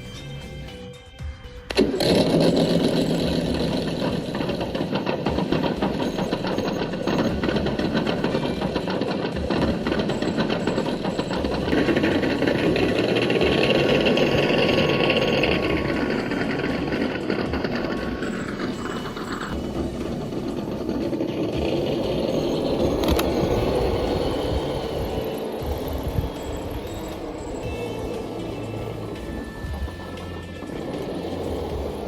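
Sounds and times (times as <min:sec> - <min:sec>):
high-pitched whine: 0:00.0 - 0:32.0
electric motor whirring: 0:01.7 - 0:32.0.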